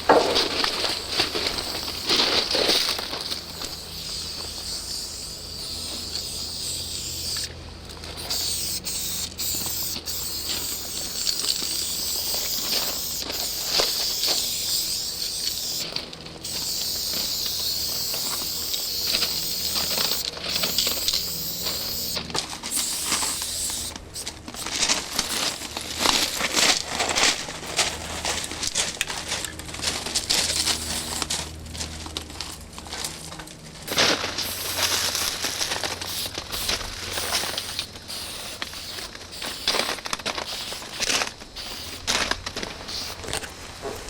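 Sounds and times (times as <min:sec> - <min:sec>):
spray paint can hissing: 0:00.0 - 0:26.5, 0:30.5 - 0:31.2, 0:33.9 - 0:43.5.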